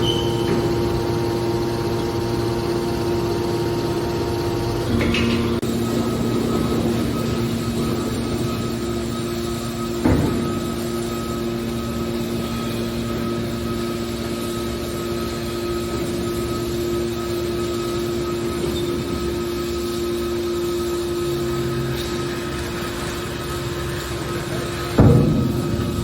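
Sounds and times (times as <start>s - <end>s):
baler machine hum: 0.0s - 26.0s
loud metal clank: 4.9s - 5.7s, 24.8s - 26.0s.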